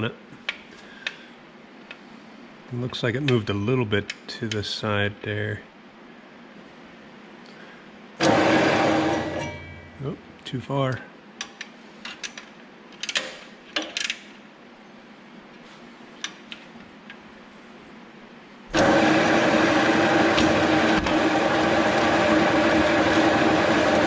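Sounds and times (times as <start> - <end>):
folding machine whirring: 8.2 - 10.0, 18.7 - 24.0.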